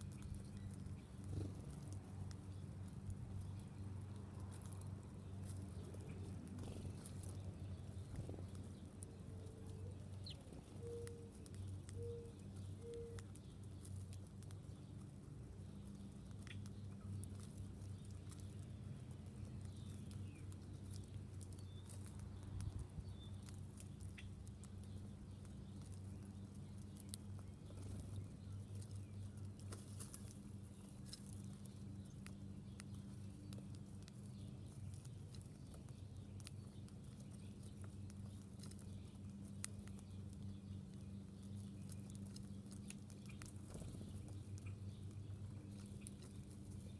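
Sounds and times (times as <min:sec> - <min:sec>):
faint bird chirps: 0:00.0 - 0:01.8, 0:02.4 - 0:14.8
animals feeding clicks and taps: 0:00.0 - 0:46.9.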